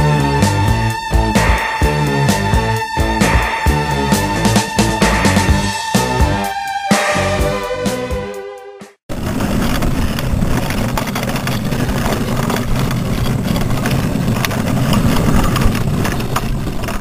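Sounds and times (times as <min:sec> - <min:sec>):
car engine and road rumble: 0:09.1 - 0:17.0.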